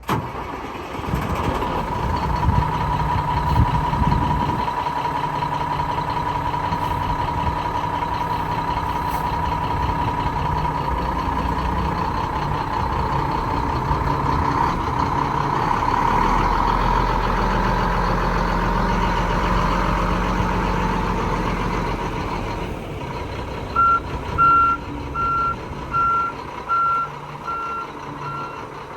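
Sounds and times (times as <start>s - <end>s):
diesel truck engine running: 0.0s - 28.9s
reversing alarm beeping: 23.8s - 28.7s.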